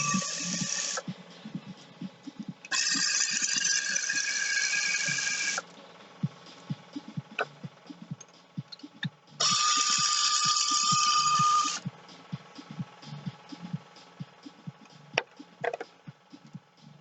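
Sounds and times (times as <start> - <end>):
handheld power tool running: 0.0 - 1.0, 2.6 - 5.6, 9.4 - 11.9.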